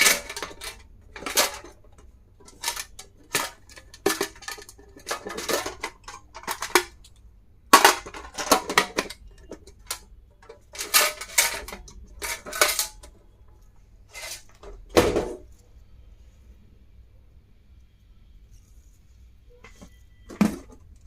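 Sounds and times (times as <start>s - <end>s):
stationery clicking and clattering: 0.0s - 13.2s.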